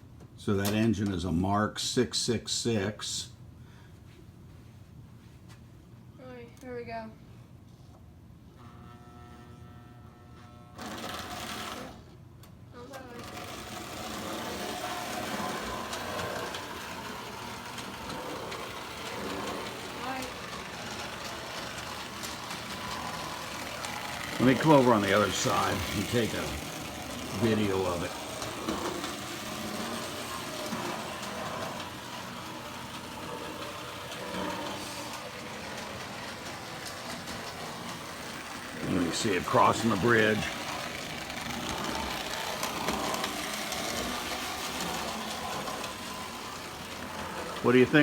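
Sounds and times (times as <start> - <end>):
toy train motor hum: 8.6 - 12.1, 12.8 - 48.0
wheels rumbling on track: 13.2 - 48.0.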